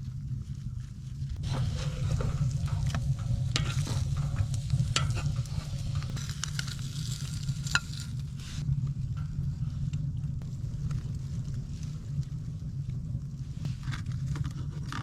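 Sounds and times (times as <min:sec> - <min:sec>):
low steady rumble: 0:00.0 - 0:15.0
food sizzling in a pan: 0:01.4 - 0:08.6.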